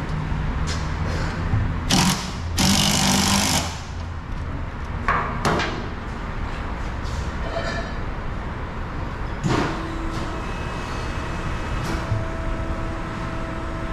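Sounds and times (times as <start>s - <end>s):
power tool running: 1.9s - 3.9s.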